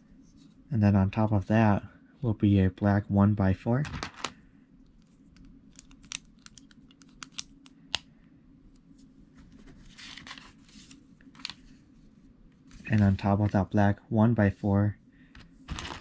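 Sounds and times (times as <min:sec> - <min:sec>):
soft rustle: 0:08.8 - 0:13.5.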